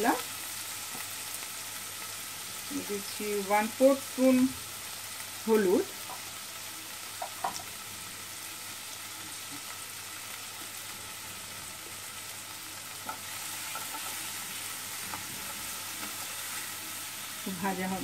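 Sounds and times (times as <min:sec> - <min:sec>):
food sizzling in oil: 0:00.0 - 0:18.0
spatula stirring a pan: 0:05.9 - 0:07.8, 0:11.8 - 0:17.5.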